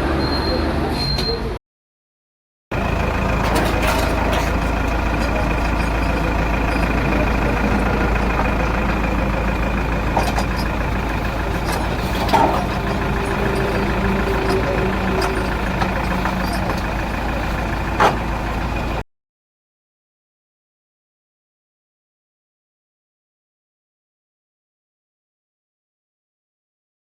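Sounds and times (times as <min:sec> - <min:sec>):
truck engine idling: 0:02.7 - 0:19.0.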